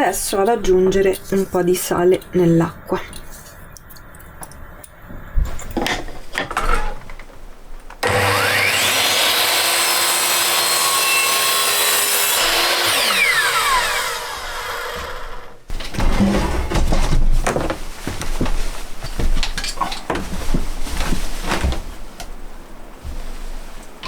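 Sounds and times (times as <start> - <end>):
small electric motor whining: 8.0 - 15.5.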